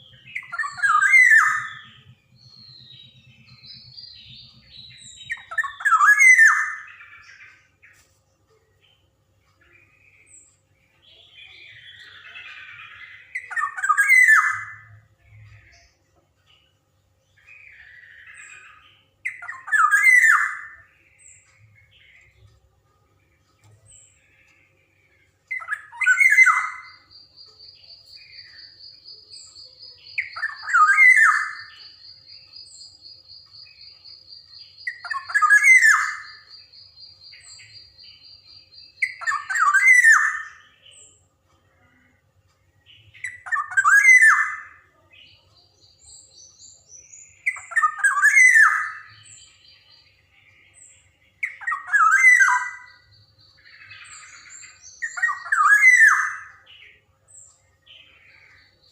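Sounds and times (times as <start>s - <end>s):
bird giving harsh calls: 0.0s - 2.1s.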